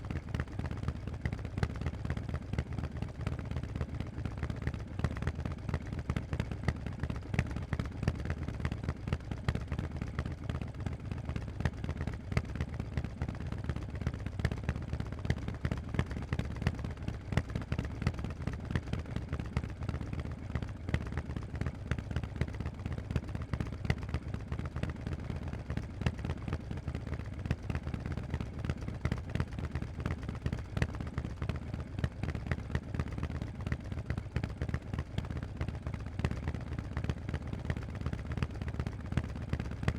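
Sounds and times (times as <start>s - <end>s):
motorcycle engine running: 0.0s - 7.0s, 19.2s - 39.9s.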